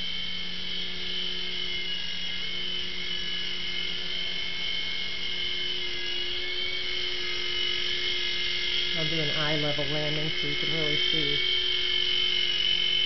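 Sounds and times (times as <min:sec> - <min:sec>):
toy helicopter whining: 0:00.0 - 0:13.0.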